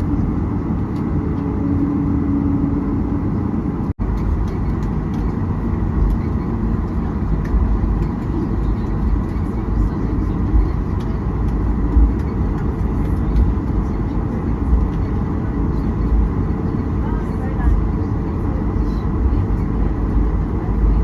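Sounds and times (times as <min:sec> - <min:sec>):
jet airliner cabin rumble: 0:00.0 - 0:21.0.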